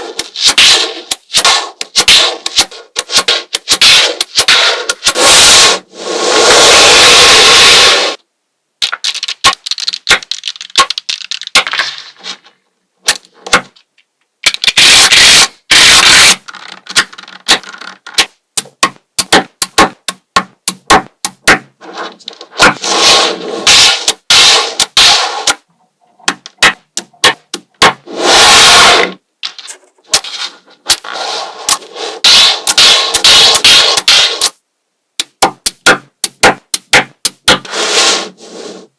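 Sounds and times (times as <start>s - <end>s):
magnetic balls clicking together: 0.2s - 5.2s, 8.8s - 11.7s, 16.3s - 21.7s, 26.3s - 28.0s, 35.2s - 37.6s.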